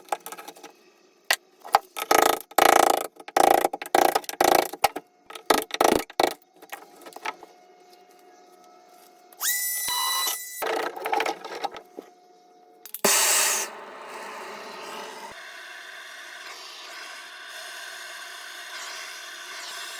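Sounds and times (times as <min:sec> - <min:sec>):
high rising whine: 0:13.0 - 0:15.6.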